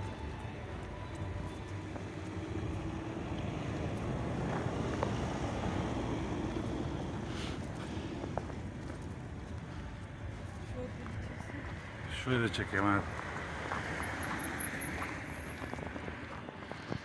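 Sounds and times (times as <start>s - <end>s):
low outdoor rumble: 0.0s - 12.1s.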